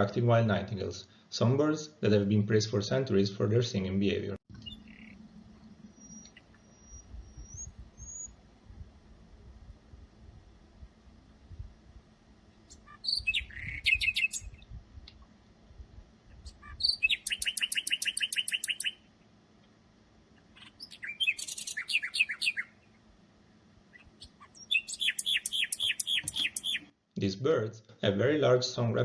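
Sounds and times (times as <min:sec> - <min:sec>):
nightingale singing: 0:04.5 - 0:08.4, 0:12.7 - 0:14.6, 0:16.3 - 0:19.0, 0:20.4 - 0:23.0, 0:23.9 - 0:26.9.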